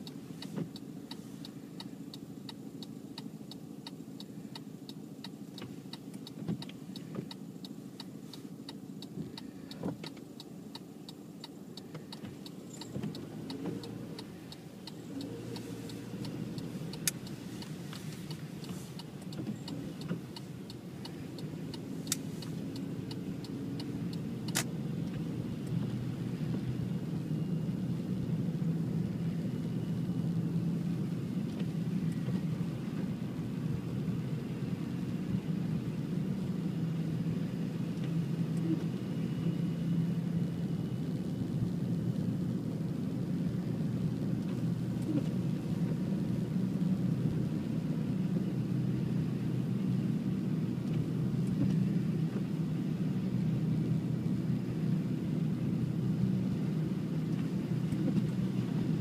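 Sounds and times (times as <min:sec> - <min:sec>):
vehicle engine running: 0:00.0 - 0:59.0
sharp clicks: 0:08.7 - 0:25.8.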